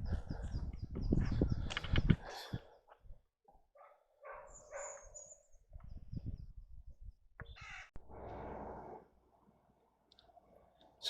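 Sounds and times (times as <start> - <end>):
bird calling: 7.4 - 8.0.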